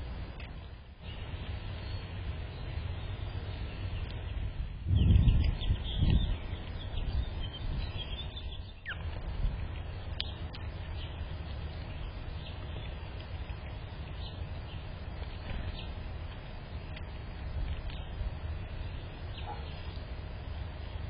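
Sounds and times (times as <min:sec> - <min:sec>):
low outdoor rumble: 0:00.0 - 0:21.0
faint bird chirps: 0:00.6 - 0:09.1, 0:18.8 - 0:20.0
sharp ticks: 0:10.1 - 0:14.5.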